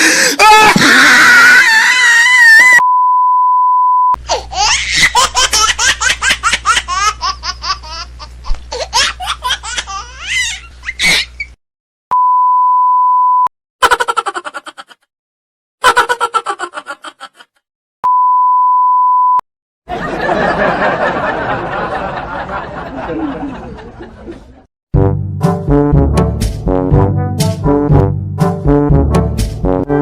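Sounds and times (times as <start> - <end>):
censor bleep: 2.8 - 4.2, 12.1 - 13.5, 18.0 - 19.4
high-pitched laughter: 4.3 - 11.5, 13.8 - 15.0, 15.8 - 17.6.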